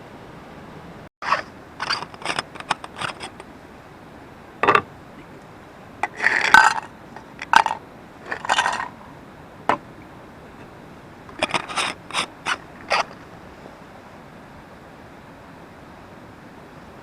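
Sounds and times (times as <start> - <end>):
hard objects clinking: 1.3 - 3.4, 6.0 - 9.0.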